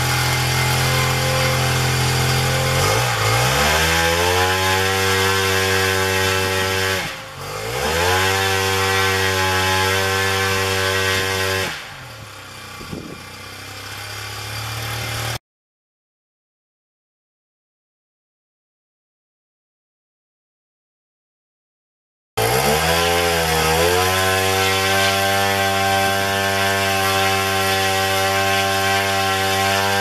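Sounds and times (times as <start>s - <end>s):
two-stroke engine turning propeller: 0.0s - 15.4s, 24.0s - 30.0s.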